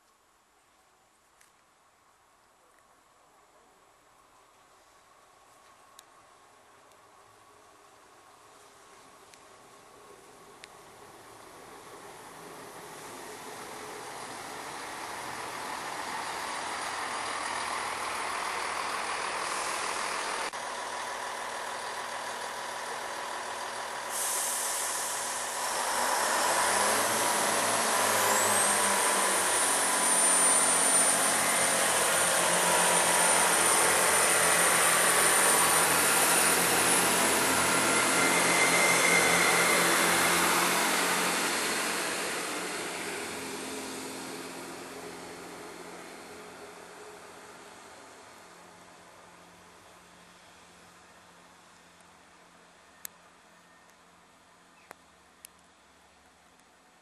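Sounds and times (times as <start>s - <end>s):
train passing close by: 10.9s - 48.6s
high-pitched wheel squeal: 24.4s - 45.3s.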